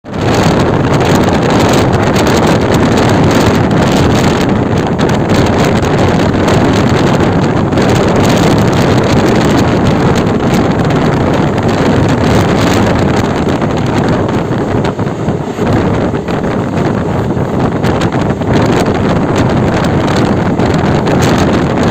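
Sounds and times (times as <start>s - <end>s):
moving train rumble: 0.0s - 21.9s
wind blowing across microphone: 0.0s - 21.9s.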